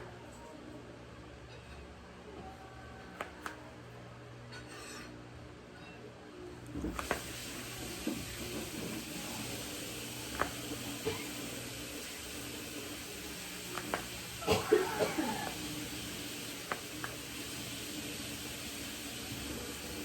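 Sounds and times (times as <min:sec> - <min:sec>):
person coughing: 0:11.0 - 0:11.4, 0:14.4 - 0:15.6.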